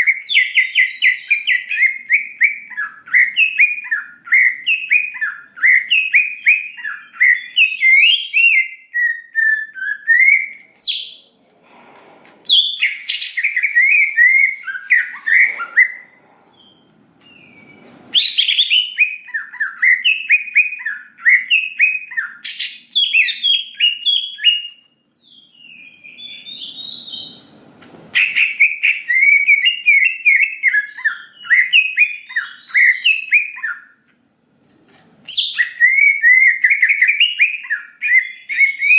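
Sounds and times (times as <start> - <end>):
leafbird singing: 12.5 - 27.6, 28.2 - 34.0.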